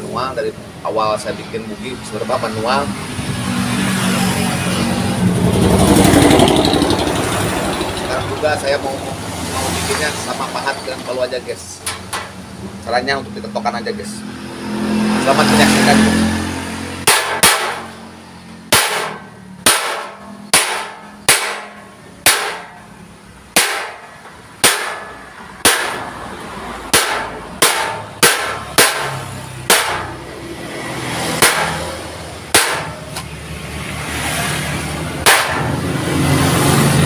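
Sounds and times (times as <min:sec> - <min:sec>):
hammer striking chisel on steel: 0:17.0 - 0:18.0, 0:18.7 - 0:22.9, 0:23.6 - 0:26.1, 0:26.9 - 0:30.2, 0:31.4 - 0:33.2, 0:35.2 - 0:35.8.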